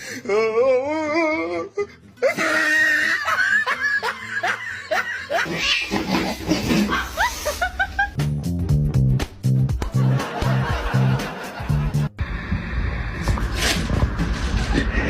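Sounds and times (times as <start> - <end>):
person laughing: 2.2 - 8.2, 14.5 - 15.0.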